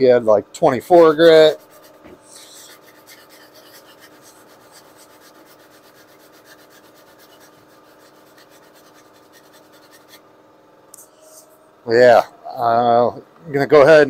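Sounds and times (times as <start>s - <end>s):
sandpaper scraping filler: 0.9s - 10.2s.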